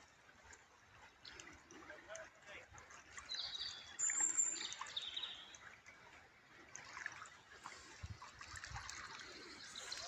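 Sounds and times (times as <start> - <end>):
water trickling: 0.0 - 10.0
small birds chirping: 3.2 - 5.6, 9.1 - 10.0.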